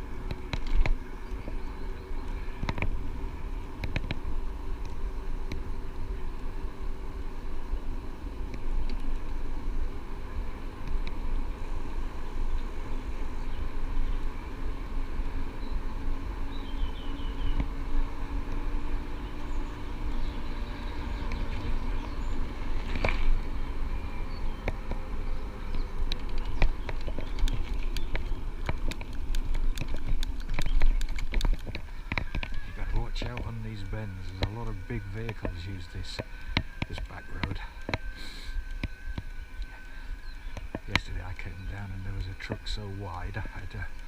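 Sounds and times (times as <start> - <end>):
faint steady hum: 0.0 - 44.0
tyre noise on road: 0.0 - 44.0
sharp clicks and rattles: 25.7 - 39.7.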